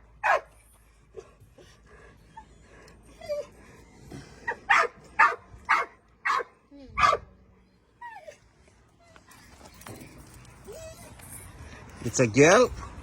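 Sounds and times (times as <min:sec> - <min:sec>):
dog barking: 0:00.2 - 0:00.5, 0:04.7 - 0:07.3
dog whining and yipping: 0:02.3 - 0:03.6, 0:10.6 - 0:11.5.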